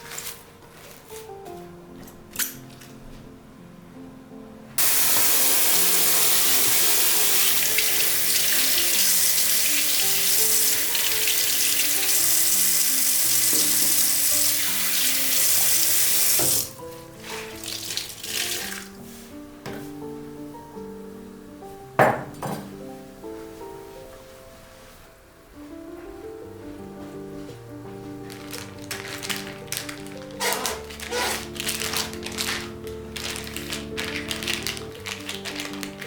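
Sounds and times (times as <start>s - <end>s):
tap water running into sink: 4.8s - 16.7s, 17.6s - 18.9s.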